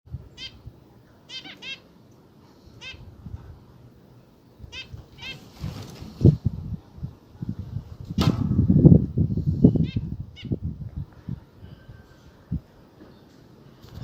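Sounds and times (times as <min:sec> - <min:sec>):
finch calls: 0:00.4 - 0:00.6, 0:01.3 - 0:01.8, 0:02.8 - 0:03.0, 0:04.7 - 0:05.4.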